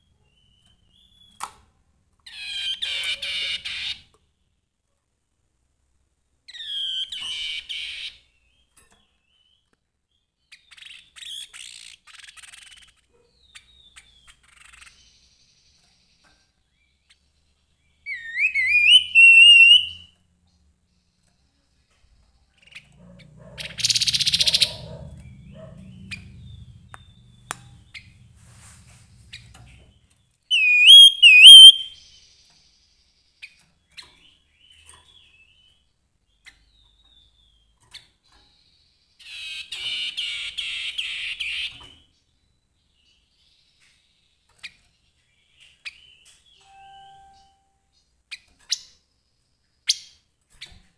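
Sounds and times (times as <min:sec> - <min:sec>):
harsh rattling bird chatter: 0:10.7 - 0:16.5, 0:22.5 - 0:28.2
bird whistled song phrases: 0:18.1 - 0:20.1, 0:30.5 - 0:32.1.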